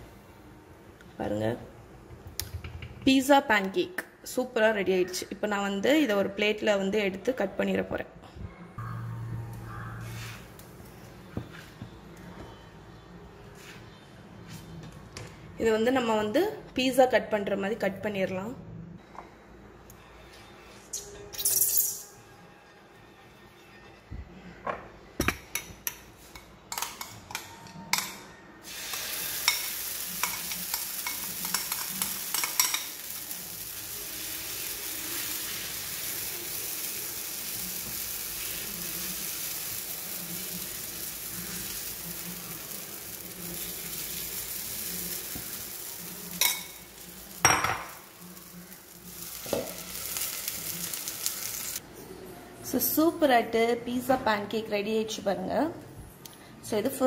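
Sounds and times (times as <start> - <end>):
utensils tapping on a pan: 25.2 - 28.2, 28.9 - 33.1, 46.3 - 46.8
batter sizzling on a hot pan: 28.6 - 51.8.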